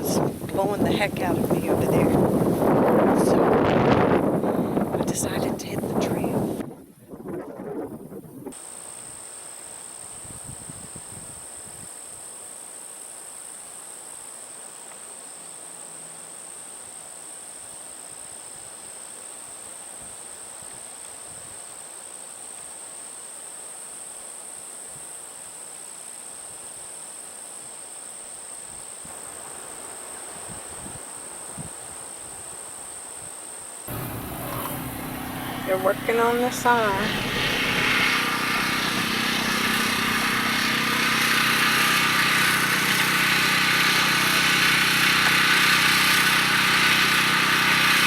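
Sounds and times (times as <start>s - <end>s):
wind rumble on microphone: 0.0s - 8.6s, 10.1s - 12.0s, 30.3s - 32.6s
insects chorus drone: 8.5s - 45.2s.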